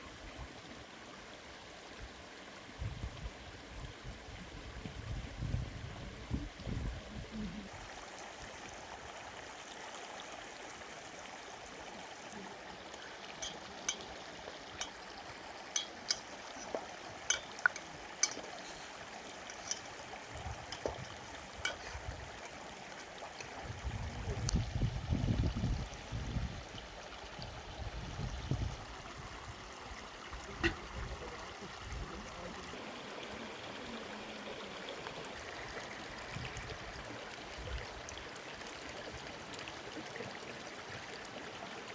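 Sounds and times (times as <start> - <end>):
running water rushing: 0.0 - 41.9.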